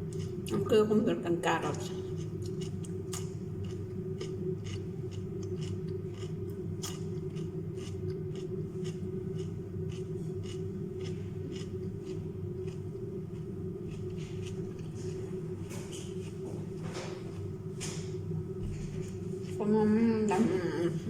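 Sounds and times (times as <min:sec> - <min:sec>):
crunchy chewing: 0:00.0 - 0:00.6, 0:01.8 - 0:18.0
low hum: 0:00.0 - 0:21.0.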